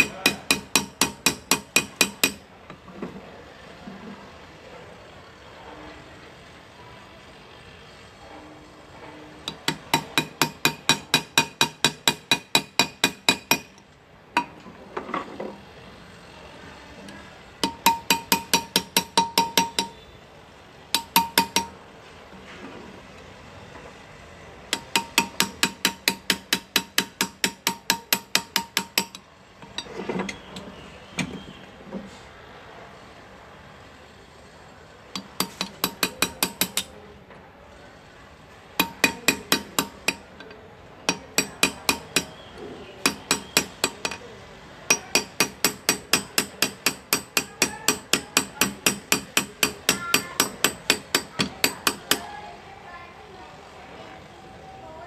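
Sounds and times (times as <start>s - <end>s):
hammer tapping graver on metal: 0.0s - 2.8s, 9.4s - 15.6s, 17.6s - 20.0s, 20.9s - 21.8s, 24.7s - 31.4s, 35.1s - 37.0s, 38.8s - 44.3s, 44.9s - 52.3s.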